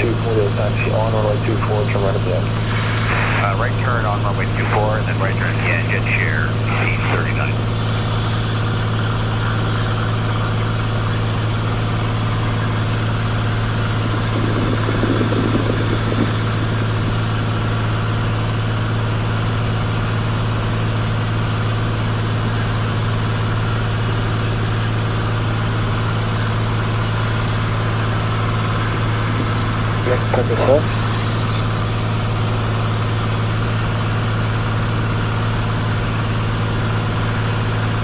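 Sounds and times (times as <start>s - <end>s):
muffled swell of noise: 0.0s - 19.6s, 25.9s - 32.9s
airplane engine and propeller drone: 0.0s - 38.0s.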